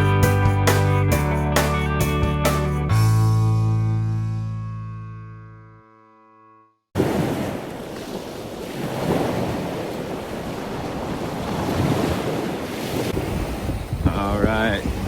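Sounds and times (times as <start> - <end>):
sea waves washing onto beach: 7.0 - 15.0
wind buffeting microphone: 7.1 - 15.0.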